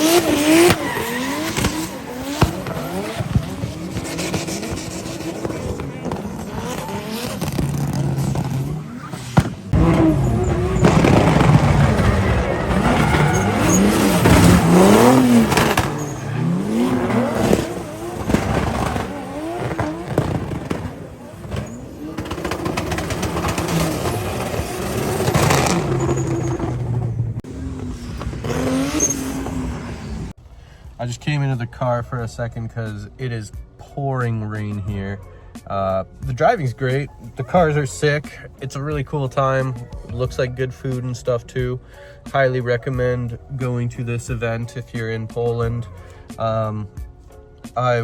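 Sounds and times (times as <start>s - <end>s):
tyre squeal: 0.0s - 30.3s
car engines revving high: 0.0s - 30.4s
exhaust pops crackling: 0.0s - 34.0s.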